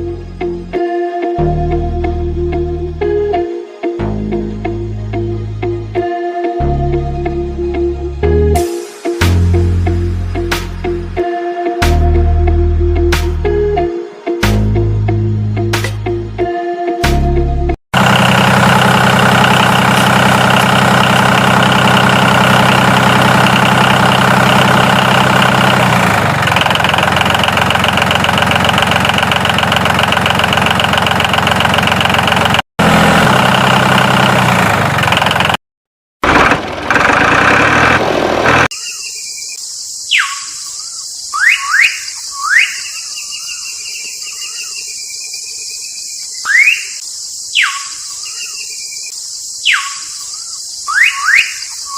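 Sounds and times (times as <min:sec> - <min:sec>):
engine idling: 0:18.0 - 0:35.6, 0:36.2 - 0:38.7
crickets chirping: 0:38.7 - 0:51.9
bird calls: 0:38.8 - 0:51.9.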